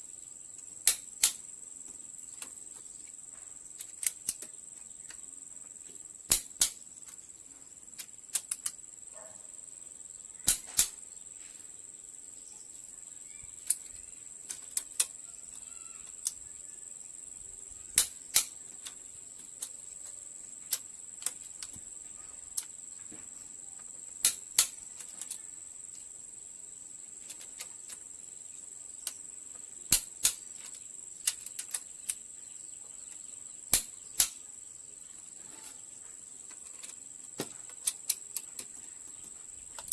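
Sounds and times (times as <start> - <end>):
light ticks of hand tools: 0.6 - 5.2, 8.0 - 8.8, 13.6 - 16.4, 17.9 - 21.8, 22.5 - 23.2, 23.8 - 26.1, 29.0 - 32.2, 35.5 - 39.9
sharp metal clicks: 0.8 - 1.4, 3.8 - 5.2, 6.3 - 7.2, 8.0 - 8.8, 10.4 - 11.0, 13.5 - 16.4, 17.9 - 21.8, 24.2 - 25.5, 27.2 - 28.1, 29.0 - 29.2, 29.9 - 32.2, 33.7 - 34.5, 36.5 - 38.8.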